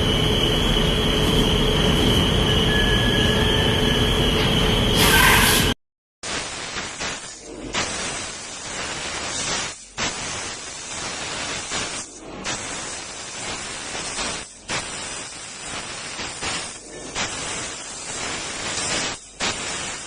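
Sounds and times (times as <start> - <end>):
laser cutter hissing: 5.0 - 20.0.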